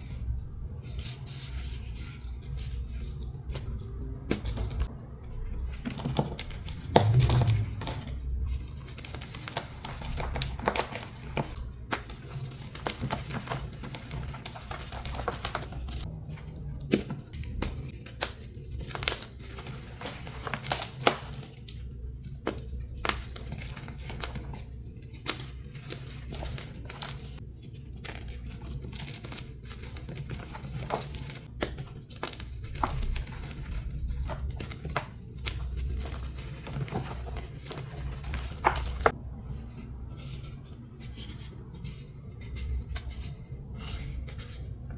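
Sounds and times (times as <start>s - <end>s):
chalk blocks being crushed: 1.2s - 27.4s, 28.0s - 39.2s.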